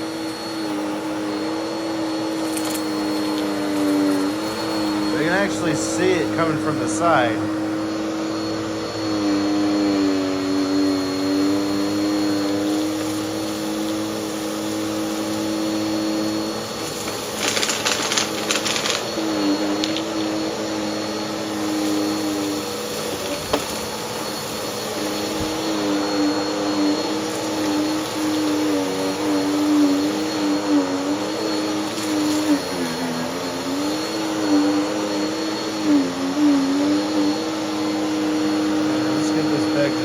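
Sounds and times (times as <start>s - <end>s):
upright vacuum cleaner running: 0.0s - 40.0s.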